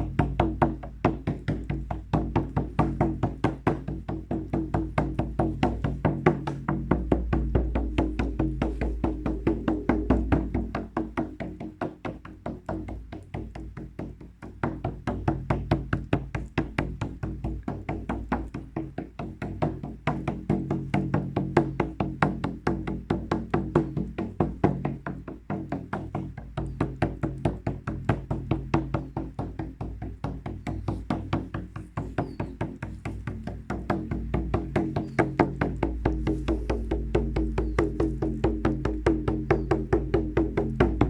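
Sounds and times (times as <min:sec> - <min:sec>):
hand drum beaten fast: 0:00.0 - 0:41.0
low ringing hum: 0:06.5 - 0:12.3, 0:36.0 - 0:41.0.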